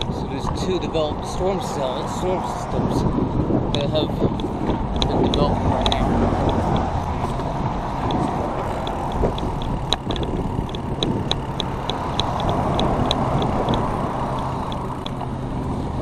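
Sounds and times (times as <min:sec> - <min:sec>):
bicycle road noise: 0:00.0 - 0:16.0
wind: 0:00.0 - 0:16.0
light ticking: 0:08.0 - 0:15.3.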